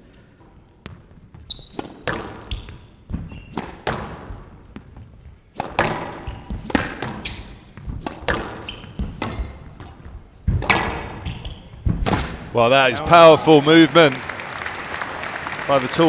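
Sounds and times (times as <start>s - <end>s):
shoes squeaking on court floor: 0.0s - 16.0s
squash ball hitting rackets: 0.9s - 13.2s
ball thudding against walls: 5.6s - 13.2s.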